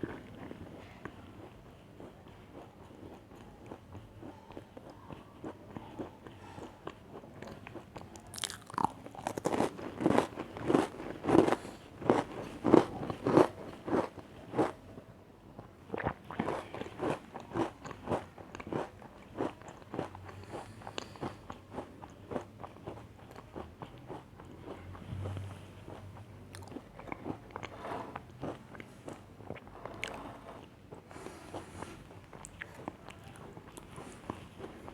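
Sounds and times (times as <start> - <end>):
soft chewing: 0.0 - 15.0, 15.6 - 34.9
crunching biscuit: 7.4 - 14.8.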